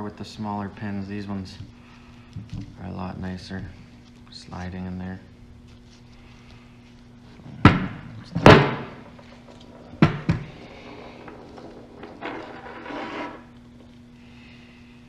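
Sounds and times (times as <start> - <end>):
rubbing: 10.6 - 13.5.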